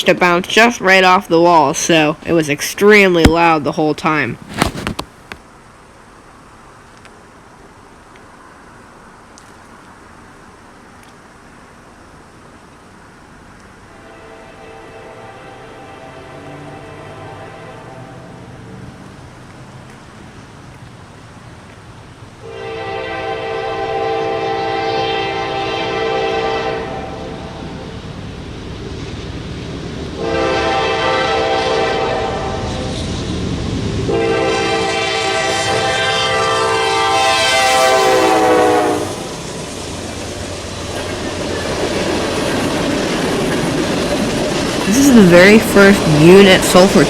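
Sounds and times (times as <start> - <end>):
locomotive air horn blasts: 14.0 - 18.3, 22.4 - 27.7, 30.2 - 32.9, 34.1 - 39.3.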